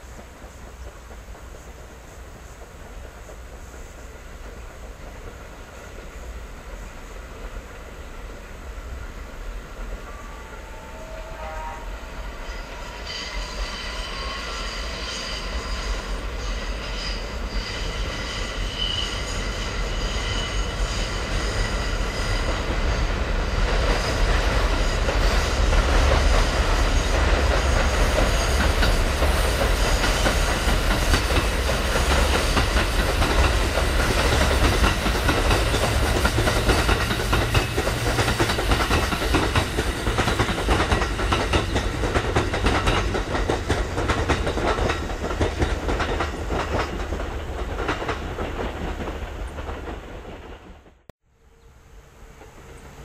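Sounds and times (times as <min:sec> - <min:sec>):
train wheels rumbling over rail joints: 0:00.0 - 0:51.1
high-pitched ringing tones: 0:09.9 - 0:22.4.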